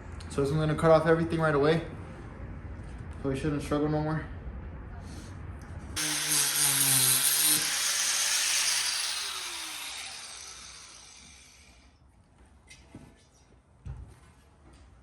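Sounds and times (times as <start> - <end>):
angle grinder cutting metal: 6.0 - 11.8.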